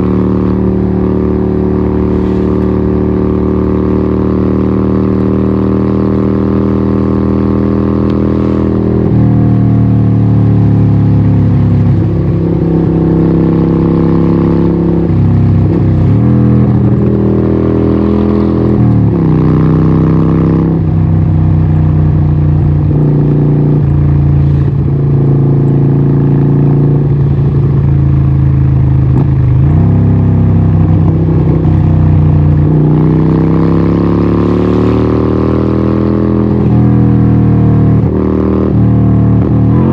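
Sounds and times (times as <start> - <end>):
loud motorcycle engine: 0.0 - 39.9.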